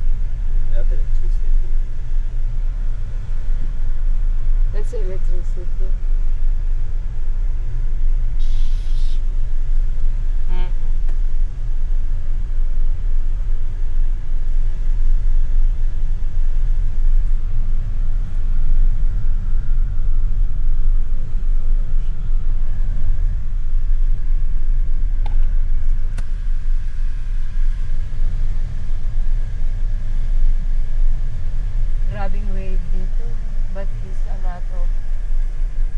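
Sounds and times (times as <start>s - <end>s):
car driving low rumble: 0.0s - 35.9s
brief hiss: 8.4s - 9.2s.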